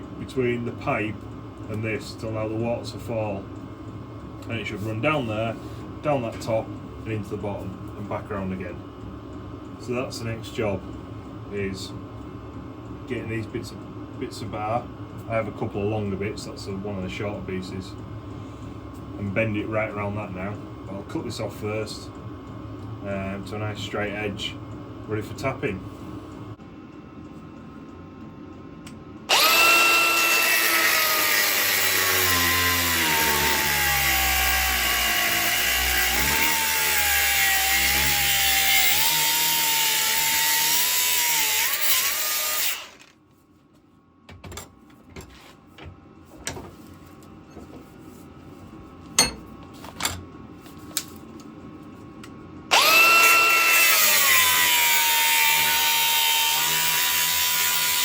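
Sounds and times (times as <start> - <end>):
angle grinder cutting steel: 29.3 - 43.1, 52.7 - 58.0.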